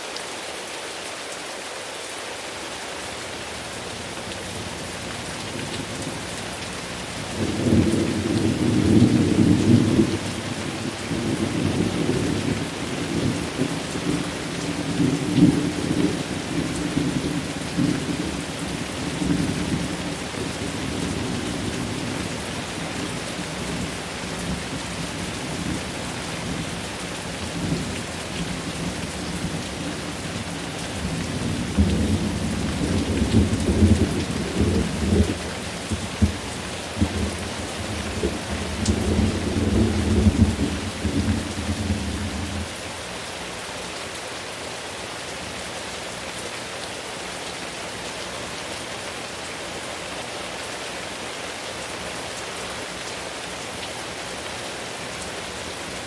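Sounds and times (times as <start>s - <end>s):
steady rain: 0.0s - 56.0s
thunder rumbling: 7.3s - 22.9s, 27.4s - 42.7s.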